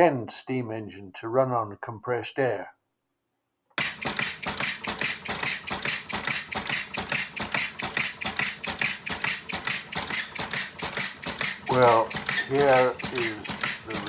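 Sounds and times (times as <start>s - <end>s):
compressed-air engine clattering: 3.8s - 14.0s.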